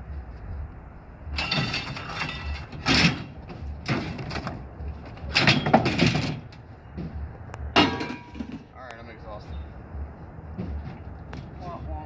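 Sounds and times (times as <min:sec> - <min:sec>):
scrap metal clattering and scraping: 0:01.3 - 0:07.1, 0:07.8 - 0:08.7.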